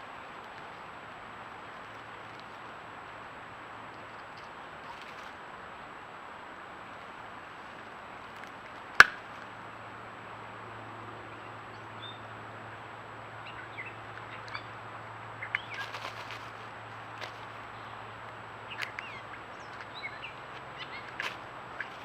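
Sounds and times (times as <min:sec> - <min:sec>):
bird chirps and calls: 0:17.3 - 0:22.0.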